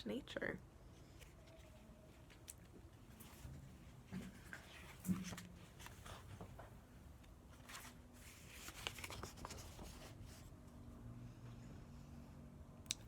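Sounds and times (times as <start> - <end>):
book pages rustling and turning: 4.1 - 10.6.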